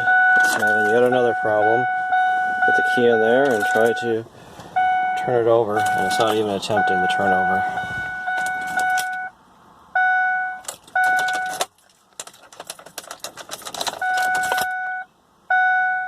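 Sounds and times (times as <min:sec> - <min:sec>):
car warning chime beeping: 0:00.0 - 0:09.4, 0:10.0 - 0:11.7, 0:13.9 - 0:16.0
keys jangling in ignition: 0:00.4 - 0:01.2, 0:03.4 - 0:04.0, 0:08.3 - 0:09.2, 0:10.6 - 0:14.8.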